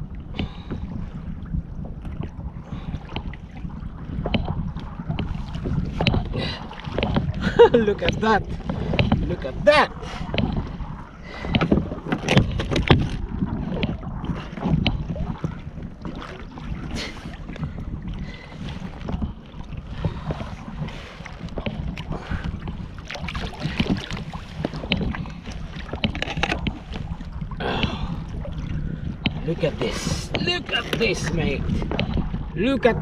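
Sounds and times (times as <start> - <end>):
wind rumble on microphone: 0.0 - 33.0
knocks and clicks of handling: 8.1 - 9.3, 25.9 - 26.8.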